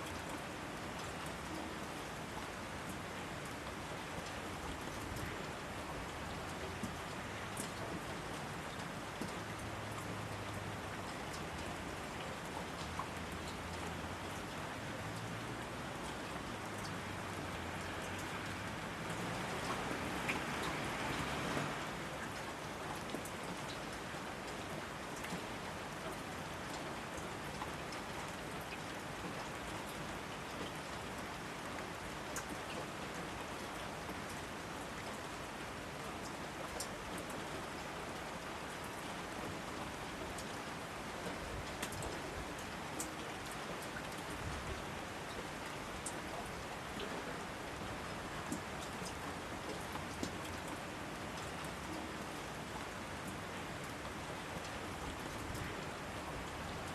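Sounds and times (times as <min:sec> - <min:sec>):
steady rain falling: 0:00.0 - 0:56.9
raindrops ticking: 0:45.3 - 0:52.3.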